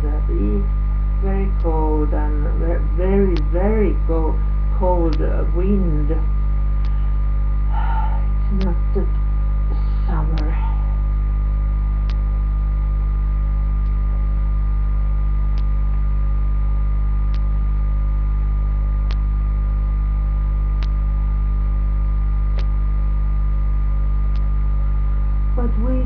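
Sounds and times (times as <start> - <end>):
electrical mains hum: 0.0 - 26.0
faint sharp click: 12.0 - 12.2, 15.5 - 15.7, 17.3 - 17.5, 19.0 - 19.3, 20.8 - 21.0, 22.5 - 22.8.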